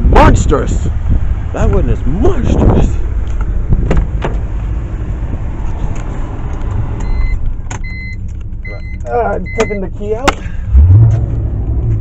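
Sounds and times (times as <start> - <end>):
car warning chime beeping: 7.0 - 10.2.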